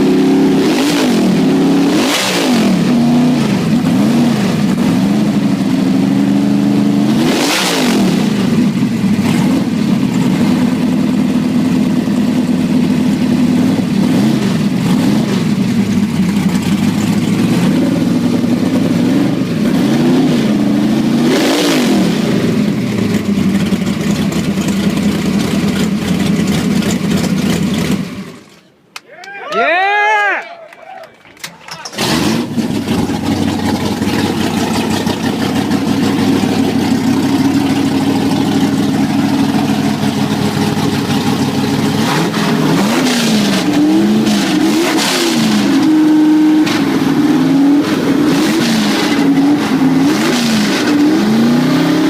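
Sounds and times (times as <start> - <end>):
drag car engine idling and revving: 0.0 - 28.7, 31.4 - 52.0.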